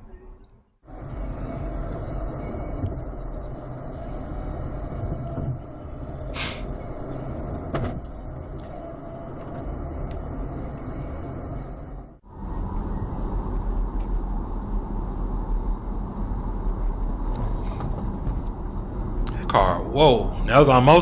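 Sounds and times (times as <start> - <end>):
vehicle road noise rumble: 0.9 - 19.4
short sharp hiss: 6.4 - 6.7.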